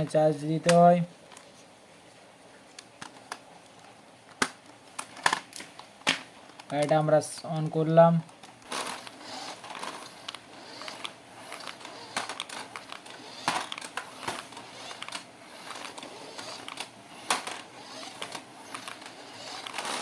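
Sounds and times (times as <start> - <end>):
packaging rustling: 3.0 - 20.0
plastic toy clicks: 7.6 - 20.0.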